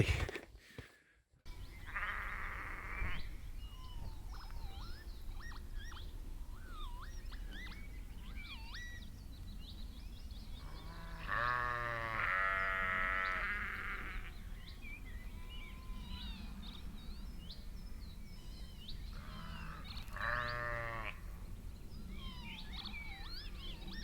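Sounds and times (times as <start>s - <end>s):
birds singing: 1.5s - 24.0s
sheep bleating: 1.8s - 3.3s, 10.9s - 14.3s, 19.2s - 21.2s.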